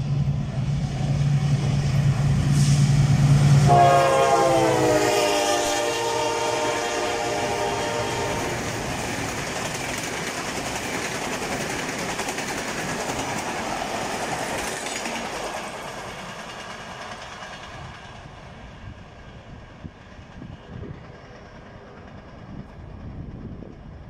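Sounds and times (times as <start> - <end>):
locomotive horn: 3.6 - 8.7
train wheels clattering over rail joints: 8.5 - 19.2.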